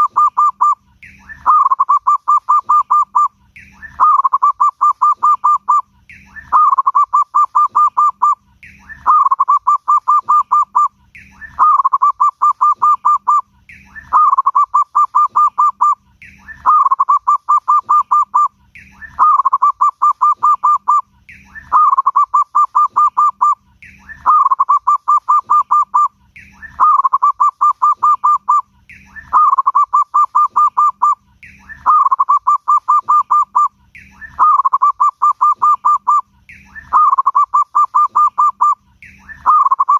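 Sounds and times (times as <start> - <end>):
dove cooing song: 0.0 - 39.9.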